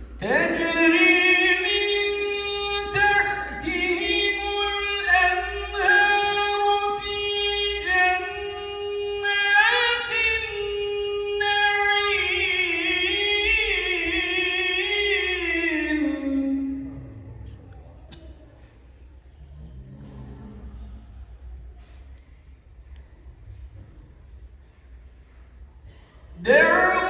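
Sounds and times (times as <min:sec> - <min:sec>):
man chanting: 0:00.2 - 0:17.8, 0:26.4 - 0:27.0.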